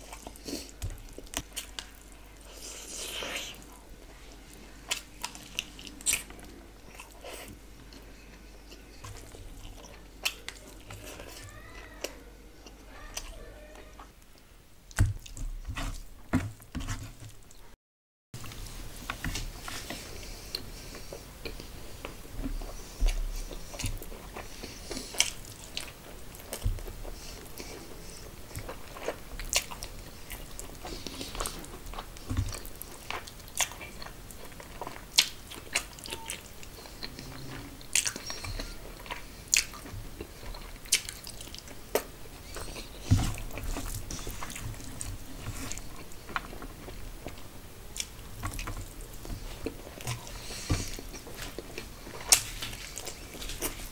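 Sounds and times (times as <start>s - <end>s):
person chewing and biting food: 18.4s - 53.9s.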